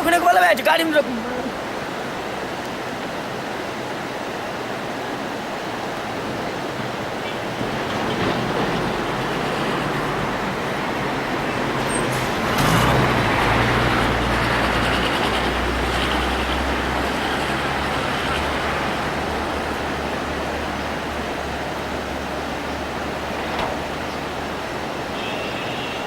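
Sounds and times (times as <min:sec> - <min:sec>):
road noise hiss: 0:00.0 - 0:26.0
vehicle engine hum: 0:07.6 - 0:25.2.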